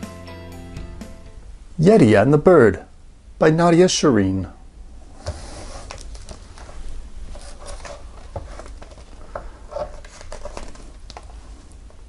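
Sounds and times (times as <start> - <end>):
faint low hum: 0.8 - 12.0
book pages turning: 5.2 - 12.0
rustles and taps of book handling: 5.2 - 12.0.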